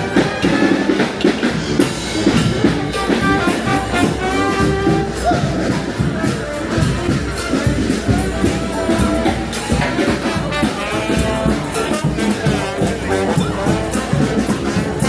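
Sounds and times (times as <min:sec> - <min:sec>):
brass band playing: 0:00.0 - 0:15.0
steady drum beat: 0:00.0 - 0:15.0.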